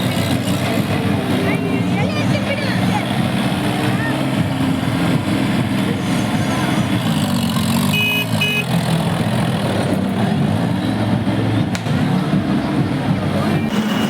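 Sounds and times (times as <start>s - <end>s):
tractor engine running: 0.0s - 14.0s
short high electronic beeps: 13.6s - 14.0s.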